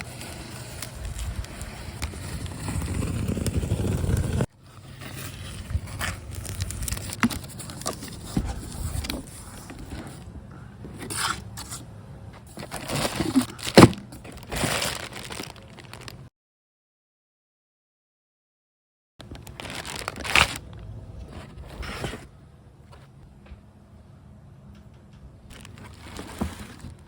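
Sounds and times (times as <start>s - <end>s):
packaging crinkling and rustling: 0.0s - 10.2s, 12.5s - 16.3s, 19.2s - 22.2s, 25.5s - 27.0s.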